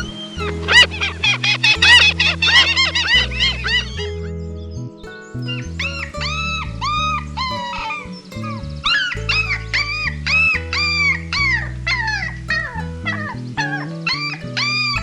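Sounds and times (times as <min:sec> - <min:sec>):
background music with bass: 0:00.0 - 0:15.0
animal whining: 0:05.4 - 0:15.0.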